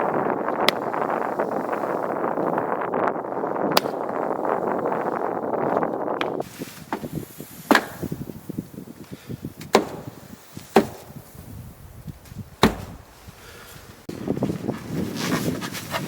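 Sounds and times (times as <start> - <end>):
axe chopping firewood: 0.6 - 1.0, 3.7 - 4.2, 6.2 - 8.3, 9.5 - 11.2, 12.3 - 13.0.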